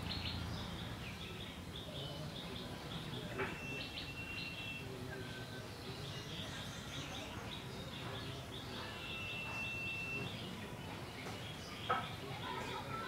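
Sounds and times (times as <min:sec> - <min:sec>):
outdoor background noise: 0:00.0 - 0:13.0
small birds chirping: 0:00.0 - 0:13.0
thin steady whistle: 0:09.0 - 0:10.4.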